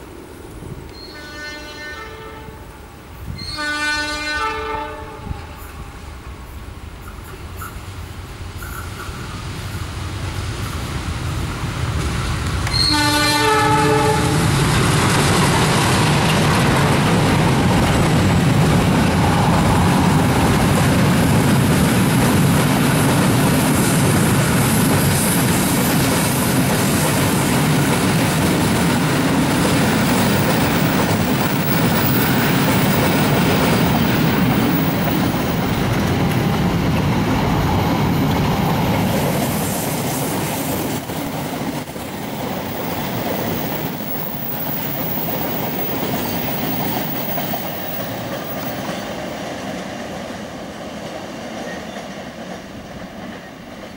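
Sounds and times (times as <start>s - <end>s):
train horn: 0.9s - 6.0s, 12.6s - 14.5s
train wheels rumbling on rails: 2.7s - 53.9s.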